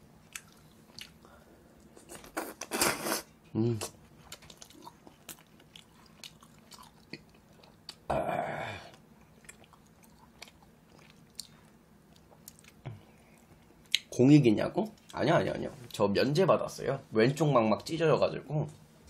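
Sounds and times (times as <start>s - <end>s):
person chewing wetly: 0.2s - 2.9s, 4.2s - 8.1s, 8.9s - 14.1s.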